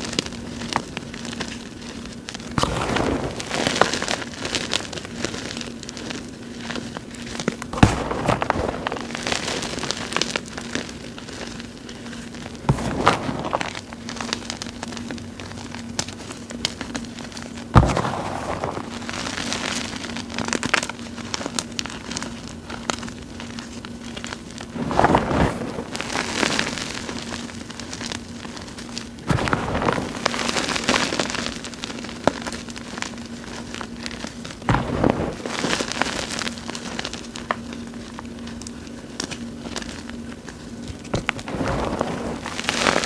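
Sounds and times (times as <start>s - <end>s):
crunchy chunks crackling: 0.0s - 43.0s
faint steady hum: 0.0s - 43.0s
powder crunching in hands: 0.4s - 43.0s
hands crunching chalk powder: 12.5s - 14.6s, 17.8s - 20.1s.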